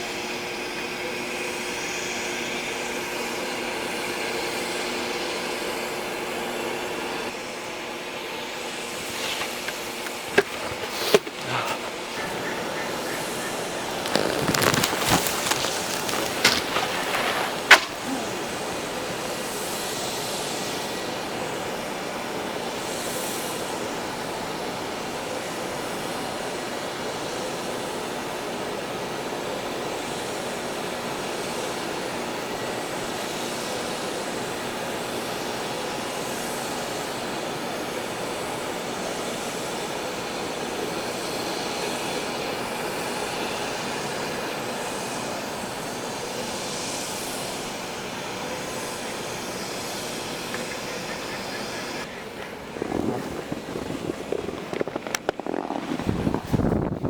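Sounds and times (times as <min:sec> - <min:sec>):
snowboard scraping and rattling: 0:08.9 - 0:18.9, 0:50.5 - 0:57.0
snowboard knocking: 0:09.0 - 0:18.8, 0:52.8 - 0:56.8.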